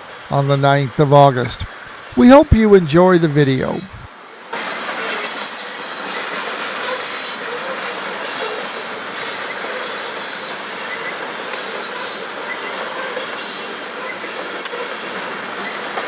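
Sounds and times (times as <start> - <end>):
steel wheels rushing on rail: 4.1 - 16.0.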